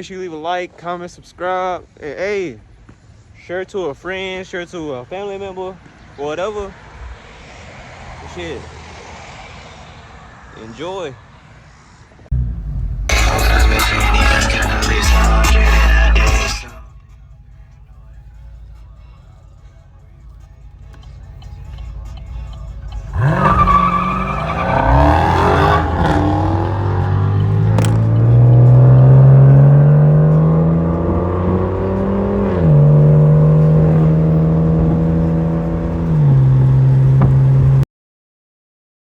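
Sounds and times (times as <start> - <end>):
car engine revving: 12.3 - 37.8.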